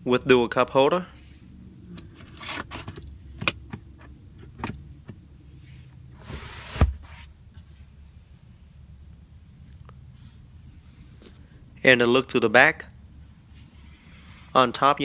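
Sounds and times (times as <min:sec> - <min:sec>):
short scrape ending in thump: 0:06.2 - 0:07.3.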